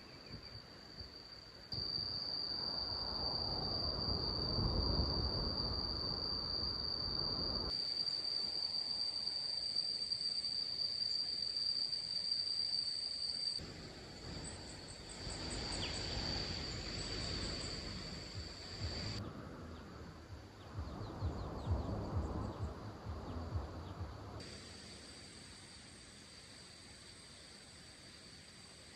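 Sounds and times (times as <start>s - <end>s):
insects chirring: 0.0s - 28.9s
low thumps: 18.4s - 24.4s.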